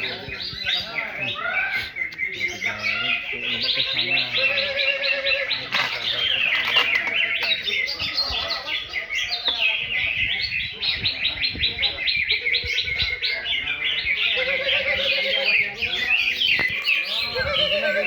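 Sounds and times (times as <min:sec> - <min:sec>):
birds chirping rapidly: 0:00.0 - 0:18.0.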